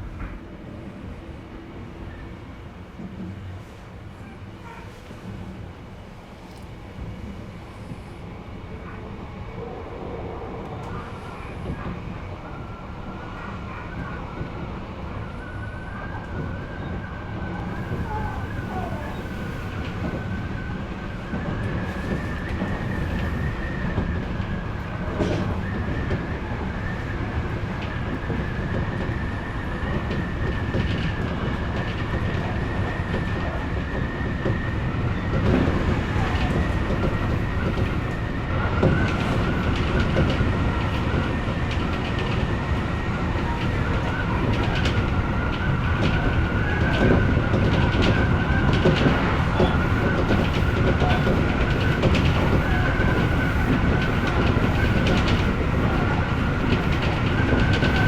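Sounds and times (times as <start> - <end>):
train wheels rumbling on rails: 0.0 - 58.0
clacks over rail joints: 27.8 - 58.0.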